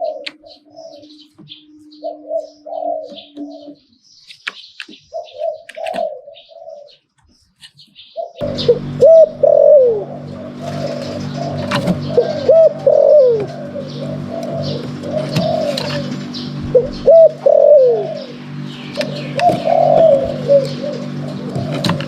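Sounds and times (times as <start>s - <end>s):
dove cooing: 0.0s - 4.0s, 5.0s - 7.0s, 8.2s - 22.0s
faint small birds chirping: 0.0s - 22.0s
steady low hum: 8.4s - 22.0s.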